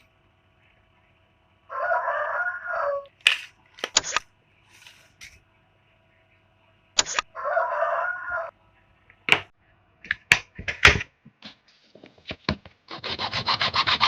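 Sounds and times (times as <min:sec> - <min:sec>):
rooster crowing: 0:01.7 - 0:03.1, 0:07.3 - 0:08.5.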